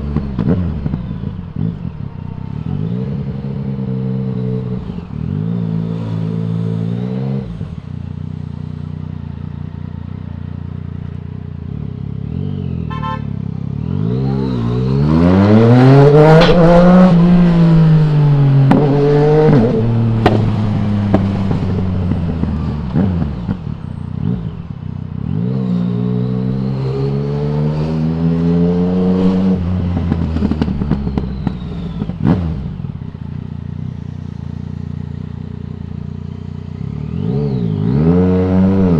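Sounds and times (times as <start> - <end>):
motorcycle engine accelerating: 0.0 - 38.9
exhaust pops and crackles: 20.2 - 22.5.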